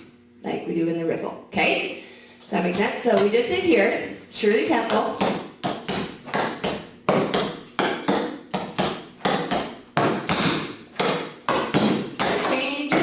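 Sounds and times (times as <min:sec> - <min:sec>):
tap shoes striking hard floor: 0:04.9 - 0:10.4, 0:11.0 - 0:13.0.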